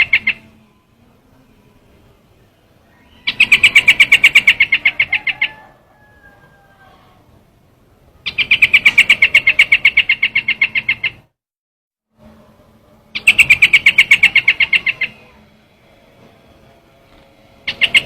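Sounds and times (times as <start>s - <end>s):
bird rapid high chirps: 0.0s - 0.6s, 2.8s - 5.8s, 8.2s - 11.3s, 13.1s - 15.4s, 17.7s - 18.0s.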